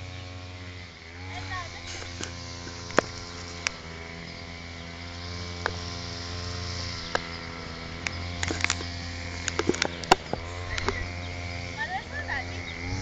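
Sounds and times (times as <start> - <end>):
steady mechanical hum: 0.0 - 13.0
sharp clicks and knocks: 8.0 - 11.0.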